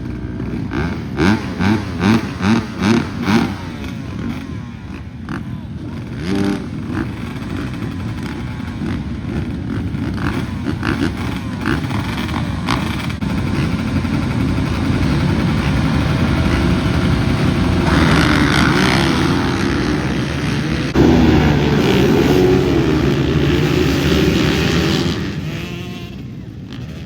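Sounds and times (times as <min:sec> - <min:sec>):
dirt bike engine running: 0:00.0 - 0:27.0.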